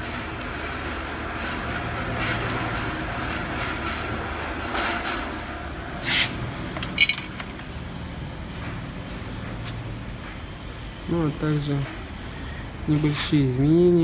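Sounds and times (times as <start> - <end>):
rustling scrape: 6.0 - 6.4.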